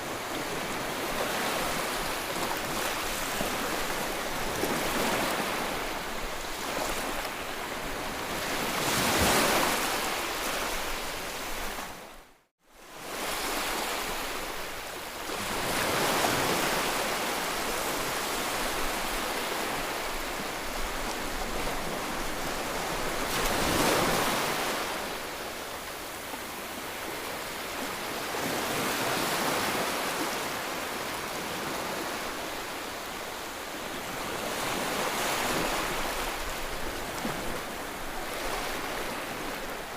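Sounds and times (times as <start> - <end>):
waves washing in: 13.0 - 39.9.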